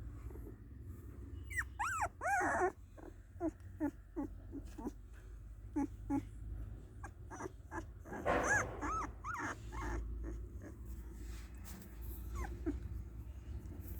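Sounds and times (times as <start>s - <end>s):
puppy whimpering: 1.4s - 6.4s, 7.0s - 11.0s, 12.1s - 13.4s.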